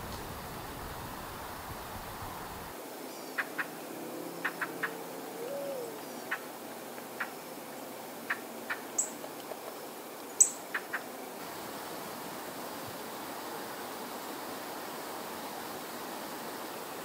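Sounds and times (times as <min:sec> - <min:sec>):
steady hiss: 0:00.0 - 0:17.0
birds chip notes: 0:08.3 - 0:09.2.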